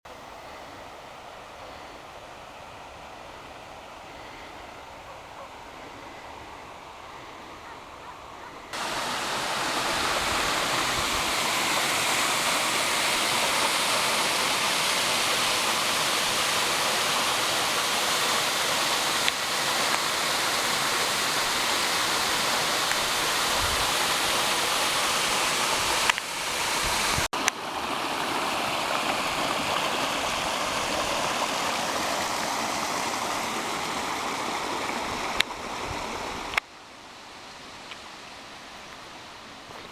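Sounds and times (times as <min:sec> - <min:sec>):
waterfall roaring: 0:08.7 - 0:36.6.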